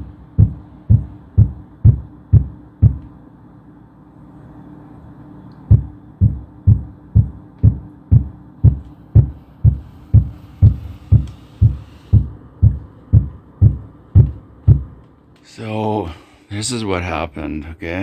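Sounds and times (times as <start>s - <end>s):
heavy thuds through ceiling: 0.0s - 3.0s, 5.7s - 15.0s.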